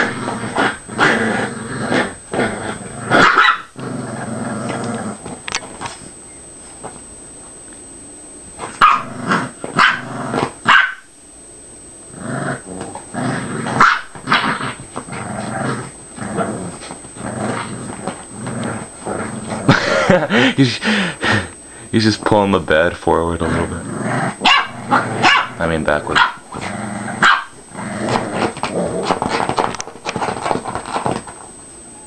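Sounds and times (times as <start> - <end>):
dogs growling: 0.0 - 5.9, 8.6 - 10.7, 12.1 - 21.6, 23.1 - 31.3
dogs barking: 3.2 - 3.7, 8.8 - 9.2, 9.8 - 11.1, 13.7 - 14.4, 24.4 - 26.4, 27.2 - 27.6.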